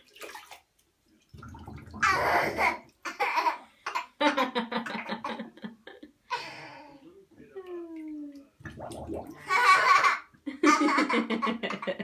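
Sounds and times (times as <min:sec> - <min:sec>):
baby laughing: 0:02.0 - 0:04.1, 0:09.4 - 0:11.9.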